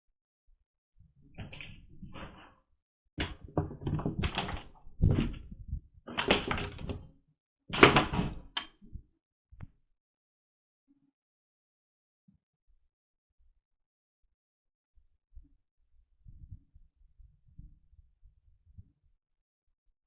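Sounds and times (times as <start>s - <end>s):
thumps and scuffling: 3.2s - 7.0s.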